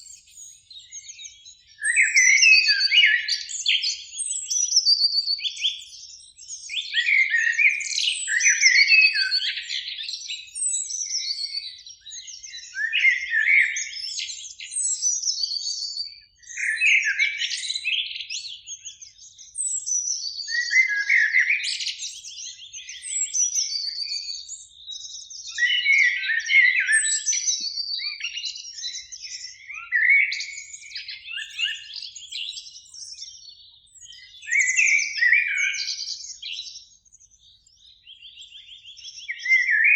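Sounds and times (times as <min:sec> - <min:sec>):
blackbirds singing: 0:00.0 - 0:39.9.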